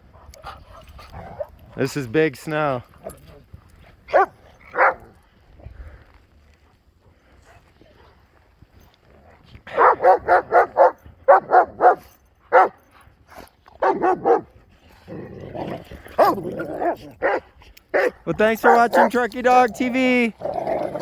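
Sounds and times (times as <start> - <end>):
dog barking: 4.1 - 5.1, 9.7 - 12.8, 13.8 - 14.5, 16.2 - 16.4, 17.2 - 19.2.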